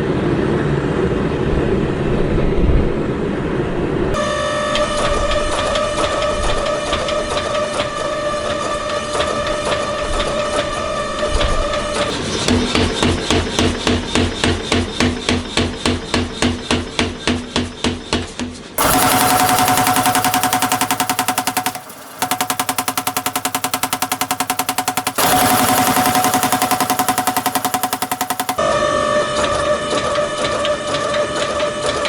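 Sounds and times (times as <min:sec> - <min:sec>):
power hammer striking metal: 0:18.8 - 0:28.6.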